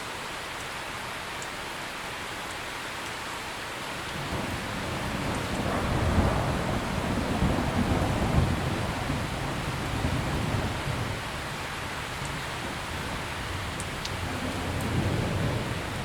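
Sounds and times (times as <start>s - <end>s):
heavy rain: 0.0s - 16.0s
low rumble of thunder: 4.0s - 16.0s.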